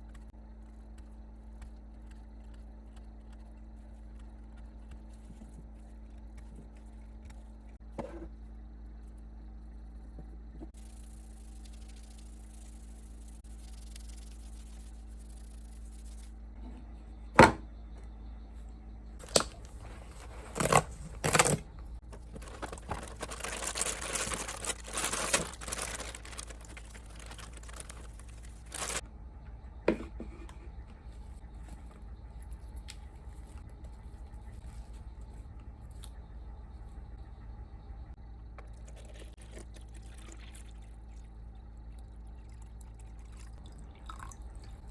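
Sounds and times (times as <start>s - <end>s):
rustling: 19.2s - 29.0s.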